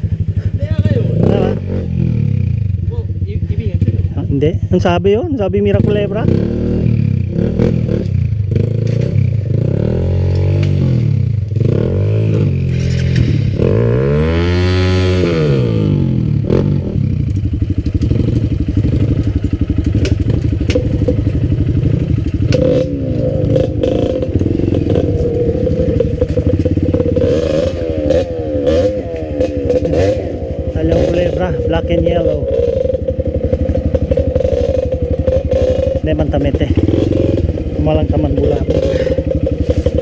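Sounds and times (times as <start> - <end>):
dirt bike engine revving: 0.0 - 40.0
clicks and clatter: 19.1 - 23.0, 23.6 - 30.2.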